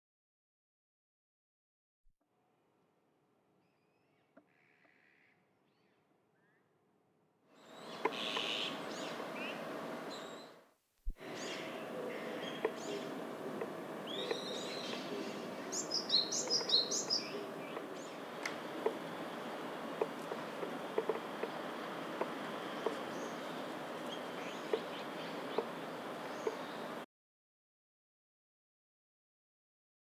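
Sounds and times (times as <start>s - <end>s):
outdoor hiss: 7.6s - 27.0s.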